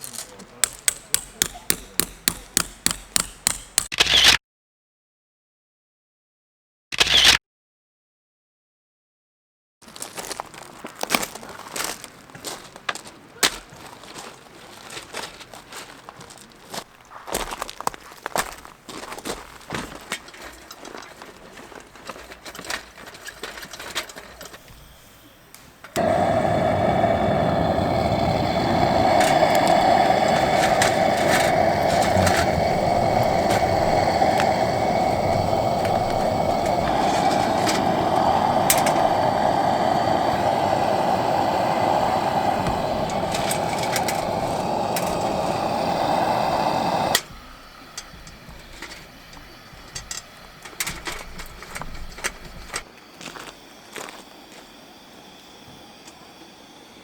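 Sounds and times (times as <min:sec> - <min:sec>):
small motor running: 0:19.4 - 0:52.9.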